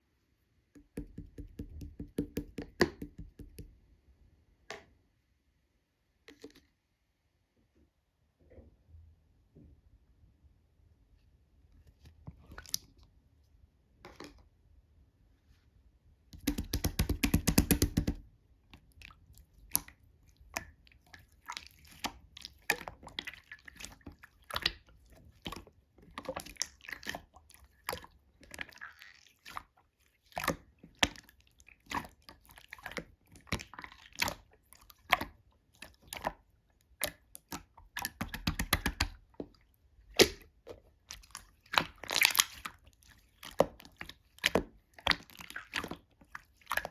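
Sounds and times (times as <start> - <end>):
slime squished by hand: 40.1 - 46.0.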